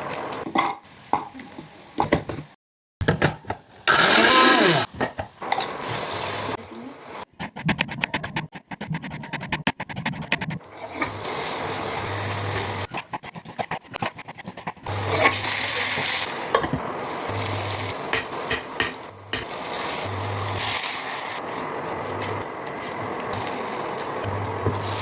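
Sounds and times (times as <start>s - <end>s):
rapid clicking stirring strokes: 7.3s - 10.7s, 12.6s - 15.4s
food frying in hot oil: 14.9s - 25.0s.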